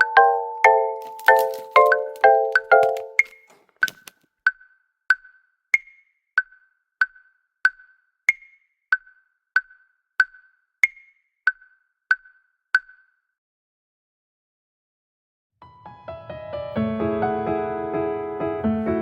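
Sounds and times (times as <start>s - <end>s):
metronome-like ticking: 0.0s - 13.1s.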